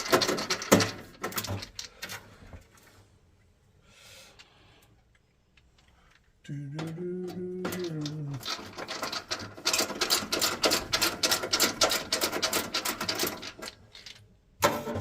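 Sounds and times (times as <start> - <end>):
metal parts clicking and rattling: 0.0 - 2.3, 7.6 - 14.3
man singing a held note: 6.4 - 8.4.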